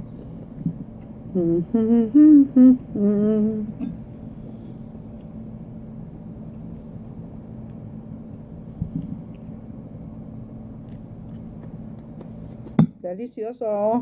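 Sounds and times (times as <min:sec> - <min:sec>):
woman humming: 0:01.3 - 0:04.0.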